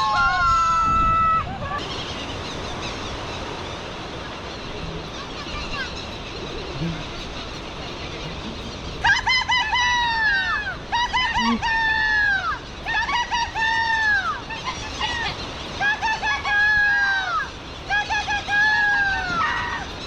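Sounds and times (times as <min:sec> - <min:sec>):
person imitating shrill bird calls: 0:04.7 - 0:20.0.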